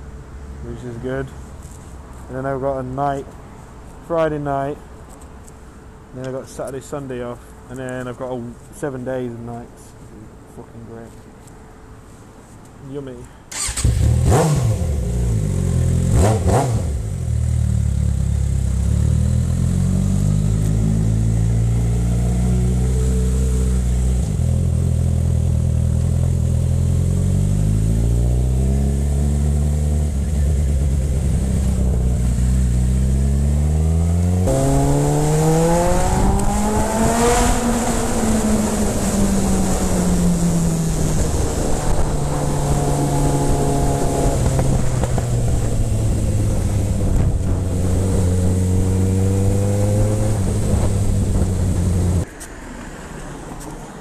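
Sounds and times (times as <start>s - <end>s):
motorcycle engine accelerating: 13.5s - 52.2s
wind rushing over microphone: 33.9s - 52.3s.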